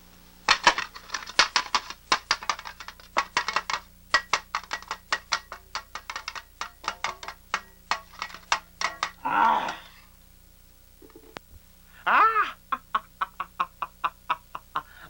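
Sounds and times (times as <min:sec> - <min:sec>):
rapid sharp clicks and clacks: 0:00.5 - 0:09.2.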